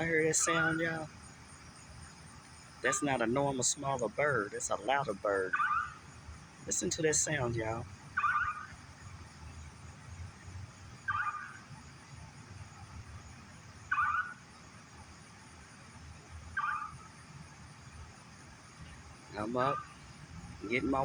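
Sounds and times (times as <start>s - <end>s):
loud bird calling: 0.0s - 1.1s, 11.1s - 11.7s, 16.6s - 17.1s.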